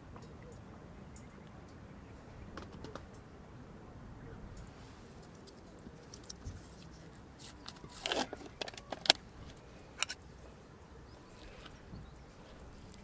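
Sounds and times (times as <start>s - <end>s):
camp gear scrape: 6.5s - 9.2s.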